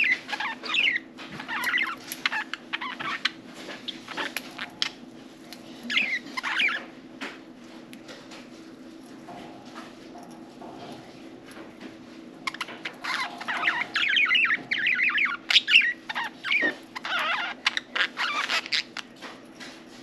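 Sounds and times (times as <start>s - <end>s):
faint low hum: 0.0s - 19.8s
budgerigars chattering: 13.1s - 18.9s.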